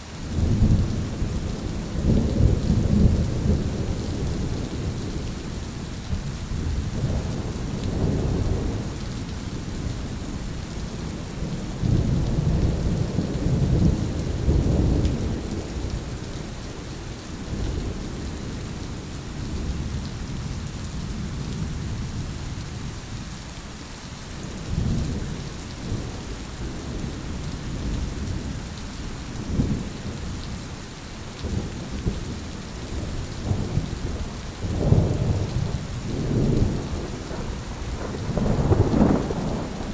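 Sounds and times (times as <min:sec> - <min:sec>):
rain hissing: 0:00.0 - 0:39.9
rolling thunder: 0:31.4 - 0:39.9.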